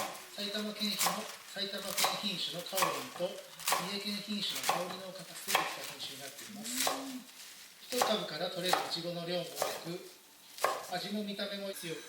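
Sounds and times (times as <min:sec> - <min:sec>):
person talking: 0:00.4 - 0:07.3.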